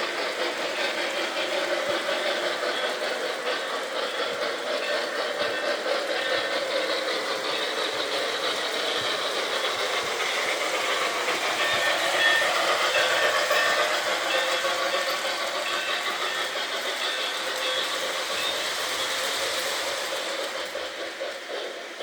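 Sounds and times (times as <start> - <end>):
model train whirring on rails: 0.0 - 22.0.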